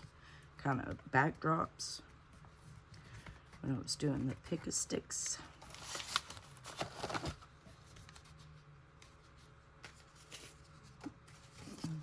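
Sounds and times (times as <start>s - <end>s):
paper rustling: 5.6s - 8.4s, 9.0s - 12.0s.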